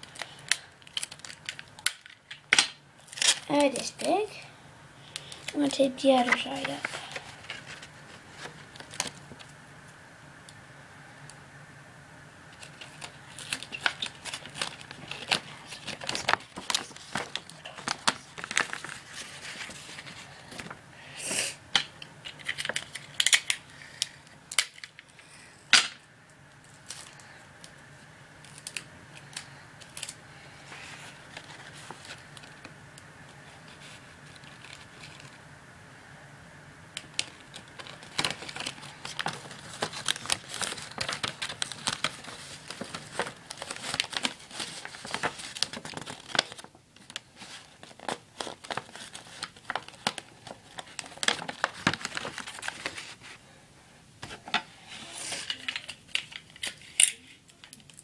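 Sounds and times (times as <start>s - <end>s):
paper rustling and crinkling: 0.0s - 4.4s, 5.1s - 9.5s, 12.6s - 20.8s, 22.2s - 23.6s, 28.4s - 32.7s, 33.4s - 35.4s, 37.0s - 53.4s, 54.2s - 58.0s.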